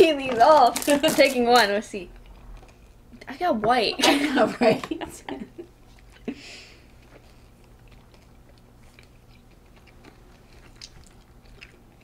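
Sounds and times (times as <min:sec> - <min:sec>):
low steady hum: 0:00.0 - 0:12.0
chewing candy: 0:05.8 - 0:12.0.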